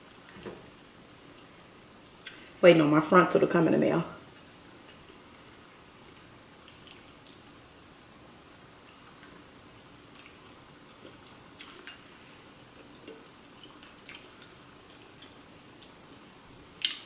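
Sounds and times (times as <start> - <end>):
low steady hiss: 0.0 - 17.0
faint chewing: 4.3 - 7.8, 8.7 - 16.0
wet clicks and smacks: 16.8 - 17.0.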